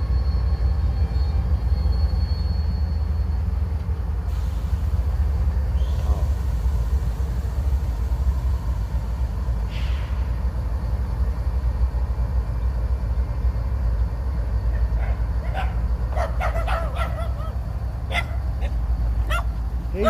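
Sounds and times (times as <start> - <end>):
freight train rumbling past: 0.0 - 20.0
short hiss: 9.6 - 10.4
dog barking: 15.0 - 19.6.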